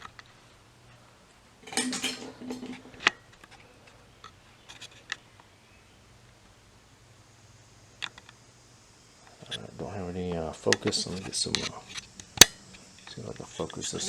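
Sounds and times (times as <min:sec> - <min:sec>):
low steady hum: 0:00.0 - 0:14.0
metal tools clinking and rattling: 0:01.6 - 0:03.1
faint ticks: 0:08.0 - 0:08.5.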